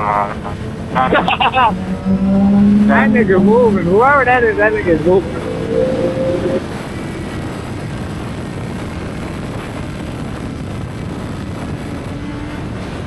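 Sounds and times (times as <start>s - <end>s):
motorcycle engine droning: 0.0s - 9.2s
wind rushing: 0.5s - 13.0s.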